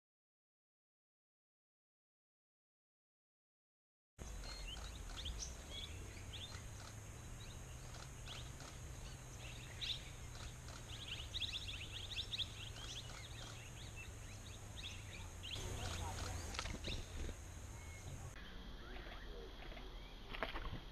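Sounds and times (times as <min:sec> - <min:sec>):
small birds chirping: 0:04.2 - 0:20.7
faint steady high hiss: 0:04.2 - 0:20.9.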